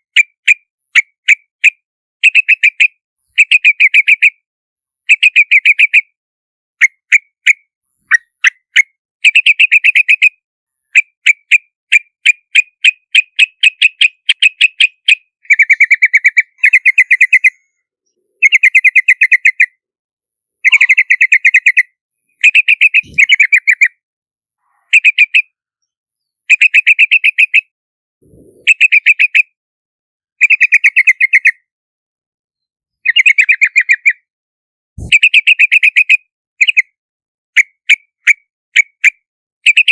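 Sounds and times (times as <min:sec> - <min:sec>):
bird bubbling chirps: 0:15.5 - 0:19.6, 0:20.6 - 0:21.8, 0:22.4 - 0:24.0, 0:28.2 - 0:29.4, 0:35.0 - 0:35.7
sharp bird notes: 0:20.6 - 0:23.9.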